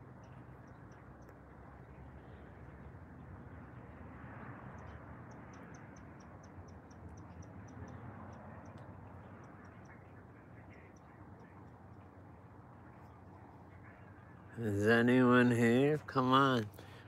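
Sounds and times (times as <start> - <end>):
small bird chirping: 4.7 - 12.2.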